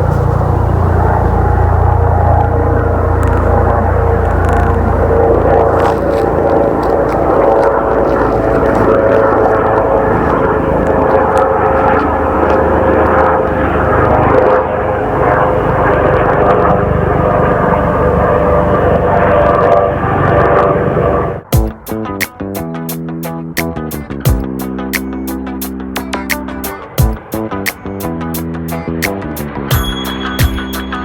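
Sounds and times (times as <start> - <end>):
guitar music: 0.0 - 14.6, 21.5 - 31.0
aircraft engines whining: 0.0 - 31.0.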